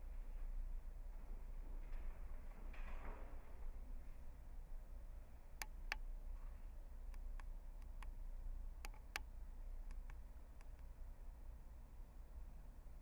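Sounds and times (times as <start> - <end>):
low steady hum: 3.4 - 13.0
sharp irregular clicks: 7.2 - 8.2, 8.8 - 9.3, 9.9 - 10.9.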